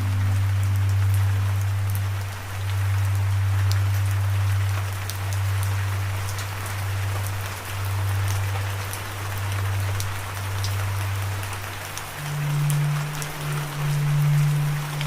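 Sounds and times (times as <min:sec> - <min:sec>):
low droning tone: 0:00.0 - 0:04.9, 0:12.2 - 0:15.0
steady rain: 0:00.0 - 0:15.0.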